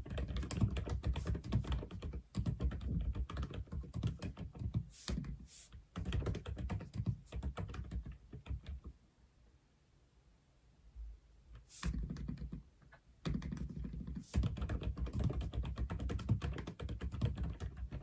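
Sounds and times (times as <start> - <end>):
mechanical keyboard typing: 0.0 - 5.2, 6.0 - 8.9, 13.2 - 18.0.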